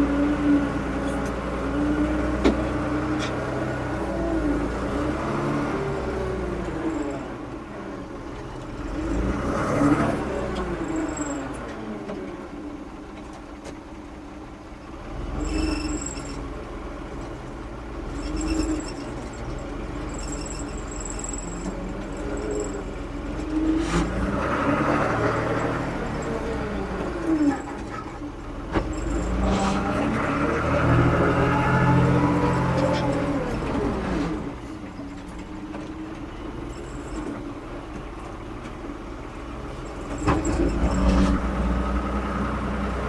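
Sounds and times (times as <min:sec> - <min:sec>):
backhoe diesel engine running: 0:00.0 - 0:43.0
high-pitched squeaks: 0:28.9 - 0:30.2.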